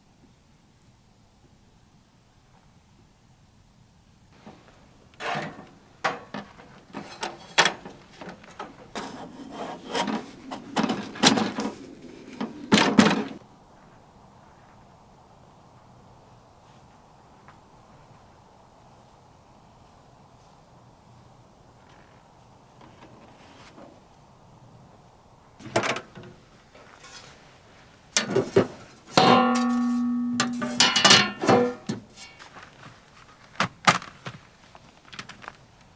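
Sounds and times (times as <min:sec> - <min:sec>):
ringing metal clang: 0:28.2 - 0:32.4
wooden objects knocking and clattering: 0:28.2 - 0:32.4.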